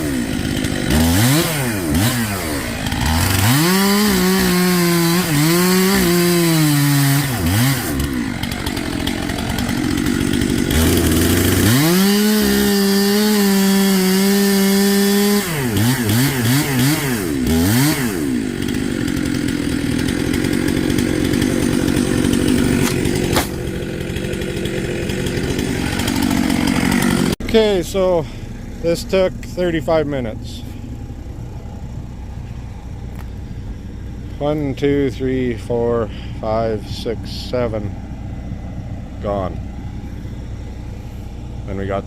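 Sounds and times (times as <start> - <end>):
chain cutting through wood: 0.0 - 27.4
chainsaw revving: 0.0 - 41.9.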